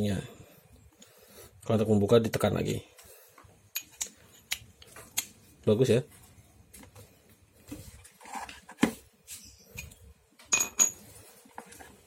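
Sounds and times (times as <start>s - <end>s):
metal tools clinking: 9.8s - 11.2s.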